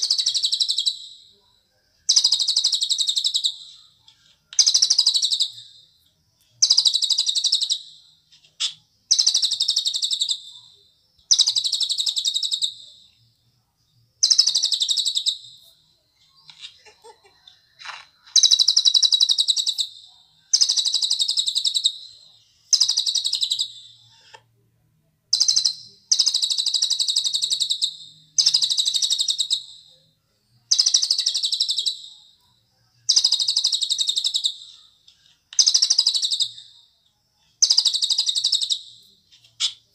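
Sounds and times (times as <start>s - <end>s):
songbird trilling: 37.6s - 38.8s.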